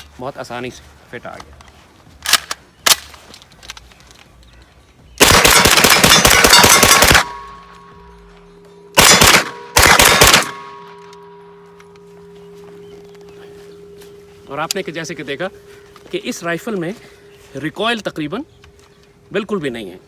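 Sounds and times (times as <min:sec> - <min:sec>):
pistol gunshots: 0:05.2 - 0:07.7, 0:09.0 - 0:11.1.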